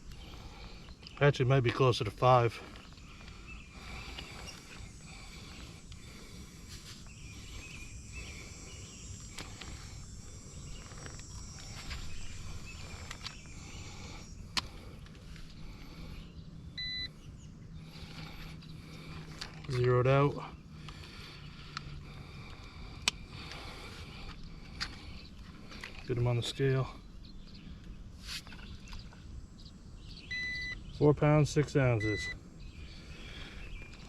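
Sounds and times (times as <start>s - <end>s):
short electronic beep: 16.8s - 17.1s, 30.3s - 30.8s, 32.0s - 32.4s.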